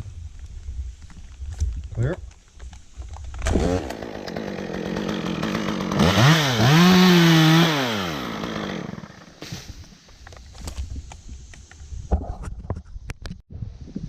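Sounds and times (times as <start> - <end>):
petrol chainsaw revving: 3.4 - 9.4.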